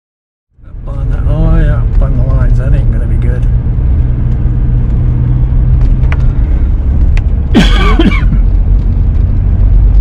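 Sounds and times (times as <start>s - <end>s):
car engine and road rumble: 0.5s - 10.0s
man clearing his throat: 7.5s - 8.5s.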